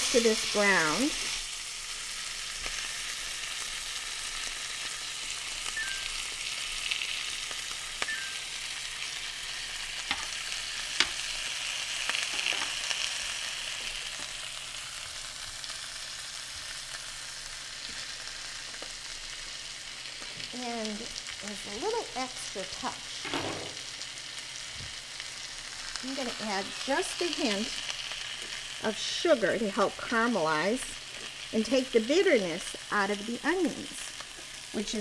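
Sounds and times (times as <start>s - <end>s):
apples and onions sizzling in skillet: 0.0s - 35.0s
pork searing in pan: 0.0s - 35.0s
metal tongs clicking on pan: 10.1s - 10.4s.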